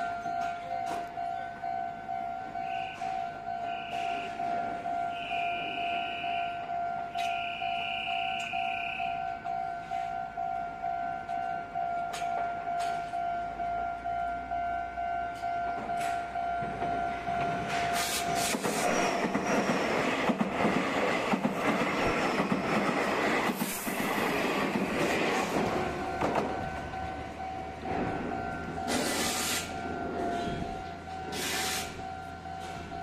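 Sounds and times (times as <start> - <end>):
level-crossing warning bell: 0.0 - 20.1, 23.9 - 33.0
electric train passing: 0.0 - 33.0
rail clatter: 15.8 - 33.0.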